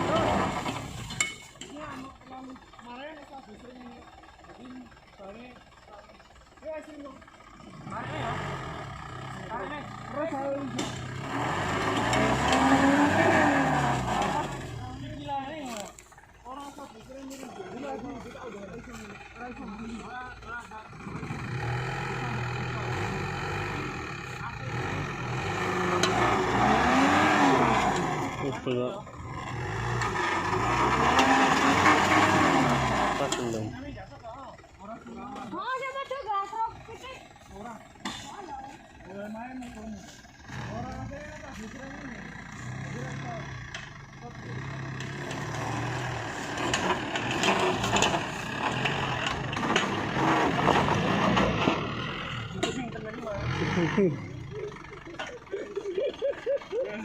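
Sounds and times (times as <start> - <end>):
engine revving under load: 0.0 - 3.8, 6.6 - 57.0.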